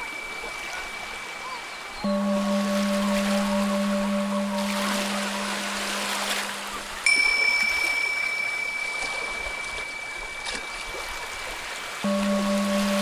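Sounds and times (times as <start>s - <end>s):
ocean waves washing: 0.0s - 13.0s
high singing bowl struck: 2.0s - 10.5s, 12.0s - 13.0s
low singing bowl tone: 2.0s - 11.1s, 12.0s - 13.0s.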